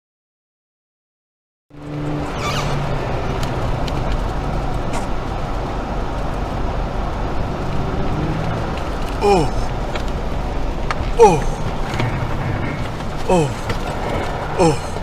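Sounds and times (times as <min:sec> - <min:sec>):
car engine and road noise: 0:01.7 - 0:15.0.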